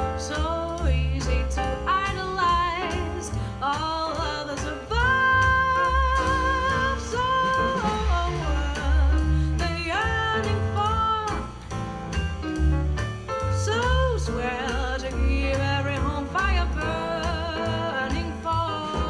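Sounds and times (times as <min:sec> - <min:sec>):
upright bass: 0:00.0 - 0:19.0
drum cymbals: 0:05.8 - 0:13.9.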